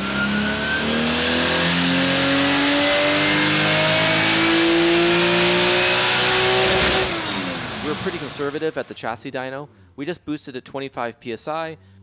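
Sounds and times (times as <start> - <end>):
car engine revving under load: 0.0 - 9.0.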